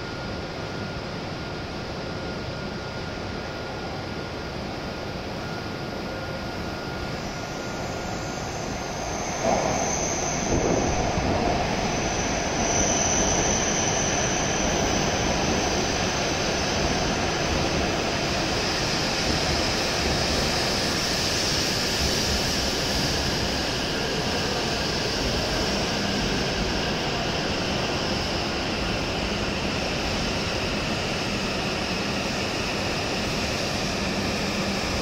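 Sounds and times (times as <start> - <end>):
train running noise: 5.3 - 35.0
thin high whine: 5.6 - 35.0.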